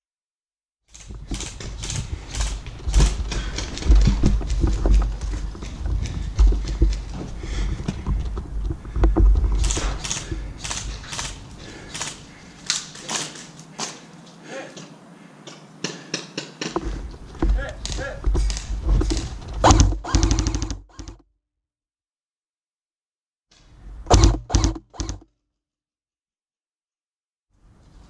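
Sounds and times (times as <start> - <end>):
handling clicks and knocks: 0.9 - 14.0.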